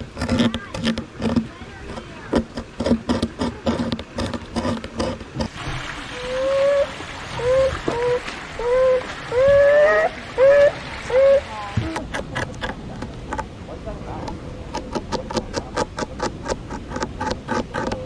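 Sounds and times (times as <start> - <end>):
beaver whining calls: 6.2 - 11.6.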